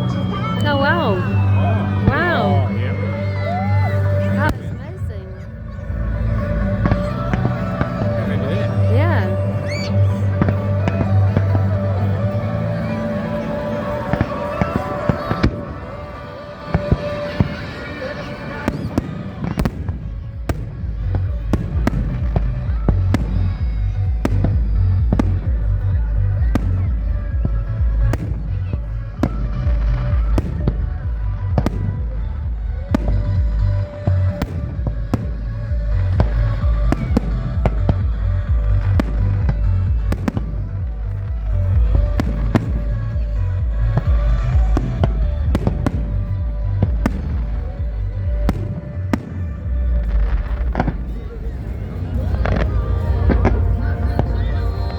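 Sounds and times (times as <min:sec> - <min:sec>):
fireworks bursting: 0:00.0 - 0:54.9
low rumble: 0:19.6 - 0:54.9.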